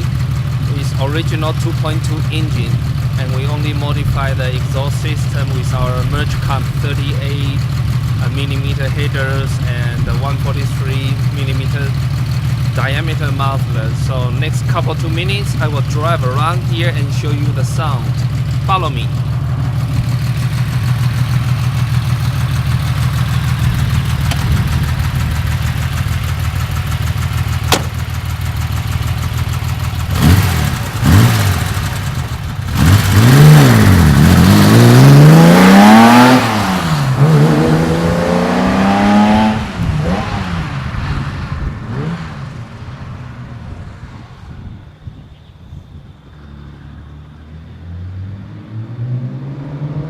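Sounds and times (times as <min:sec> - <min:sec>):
car engine idling and revving: 0:00.0 - 0:50.0.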